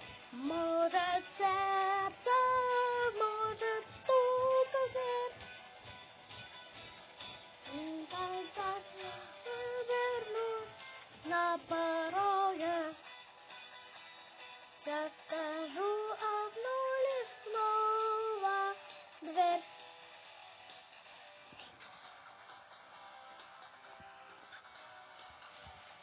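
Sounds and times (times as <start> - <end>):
high singing voice: 0.3 - 5.5, 7.6 - 13.1, 14.8 - 19.7.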